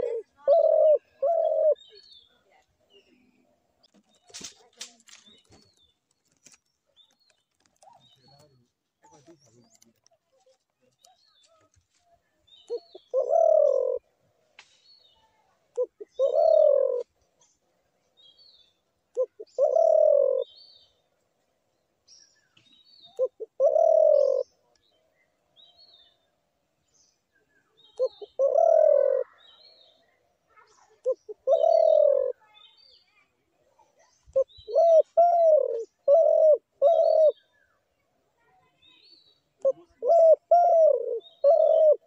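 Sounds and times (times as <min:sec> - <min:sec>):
dove cooing: 0:00.0 - 0:02.0, 0:12.7 - 0:14.1, 0:15.8 - 0:17.1, 0:19.1 - 0:20.6, 0:23.1 - 0:24.6, 0:28.0 - 0:29.4, 0:30.9 - 0:32.4, 0:34.4 - 0:37.4, 0:39.6 - 0:42.0
small birds chirping: 0:00.0 - 0:42.0.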